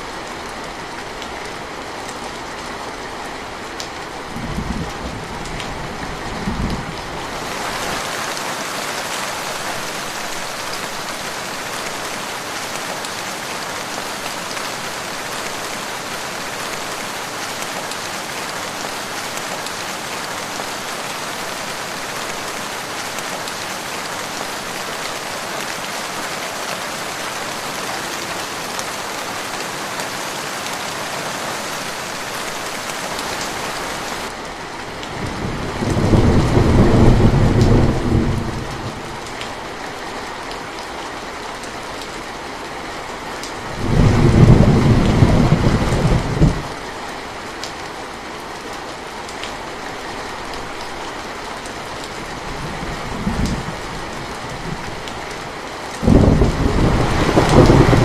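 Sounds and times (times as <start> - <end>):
steady rain falling: 0.0 - 58.0
deep rolls of thunder: 35.2 - 38.8, 56.0 - 58.0.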